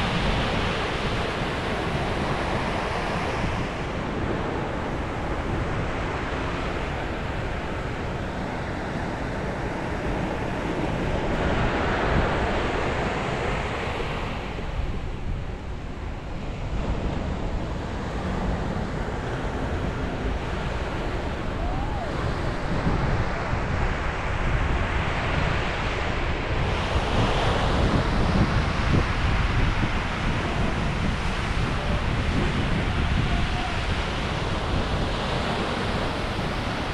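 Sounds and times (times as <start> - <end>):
sea waves breaking on shore: 0.0 - 36.9
wind rumbling on microphone: 0.0 - 36.9.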